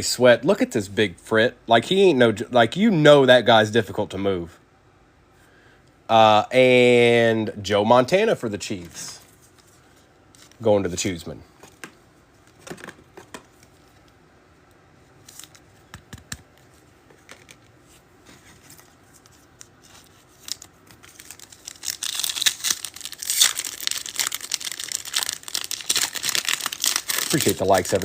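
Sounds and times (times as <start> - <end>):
foil wrapper crinkling: 18.6 - 28.0.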